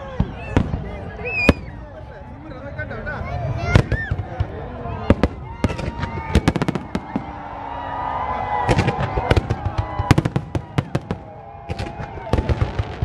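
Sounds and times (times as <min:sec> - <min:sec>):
fireworks bursting: 0:00.0 - 0:01.8, 0:03.7 - 0:07.6, 0:08.5 - 0:13.0.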